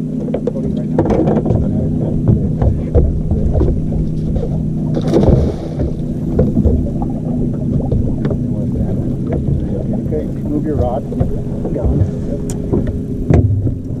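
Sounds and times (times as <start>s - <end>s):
boat motor running: 0.0s - 14.0s
water noise: 0.0s - 14.0s
knocks: 10.8s - 13.9s.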